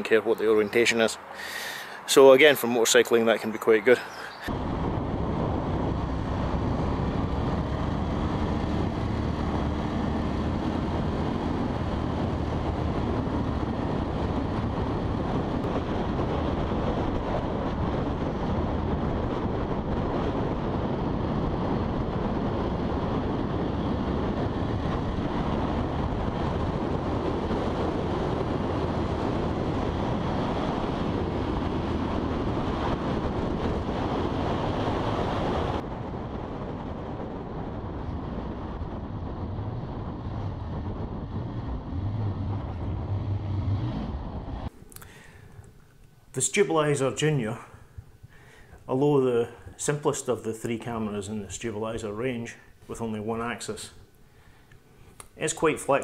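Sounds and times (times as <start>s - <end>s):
wind rush over microphone: 0.0s - 45.8s
road noise: 0.0s - 56.0s
motorcycle engine: 4.5s - 15.8s, 37.4s - 44.7s.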